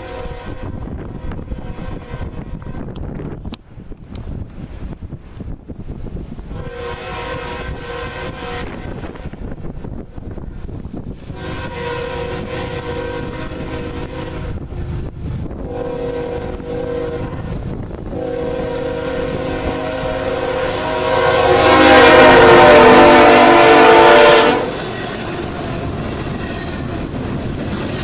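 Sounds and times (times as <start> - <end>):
locomotive air horn blasts: 0.0 - 2.8, 6.5 - 9.5, 11.3 - 14.7, 15.6 - 24.9
low train rumble: 0.0 - 28.0.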